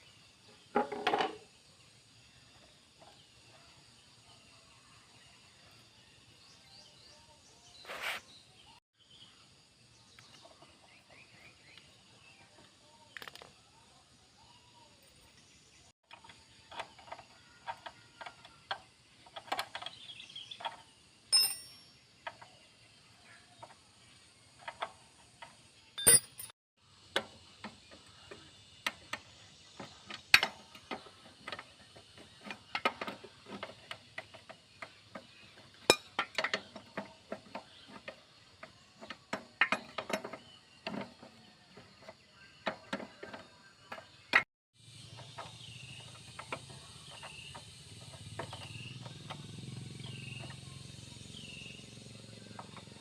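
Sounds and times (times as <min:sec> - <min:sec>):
hand tools and metal parts clinking: 0:16.1 - 0:22.6, 0:24.5 - 0:26.6, 0:28.8 - 0:44.4.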